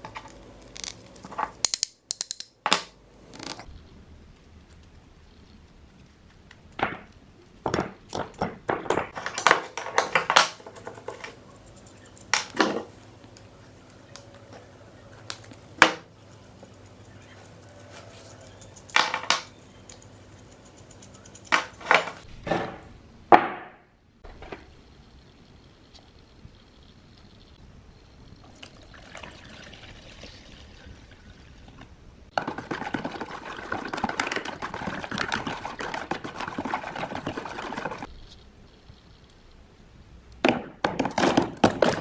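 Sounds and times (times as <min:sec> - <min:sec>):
faint steady hum: 0:00.0 - 0:08.1, 0:24.0 - 0:40.8
metal parts clinking and knocking: 0:00.7 - 0:03.6, 0:18.3 - 0:22.3.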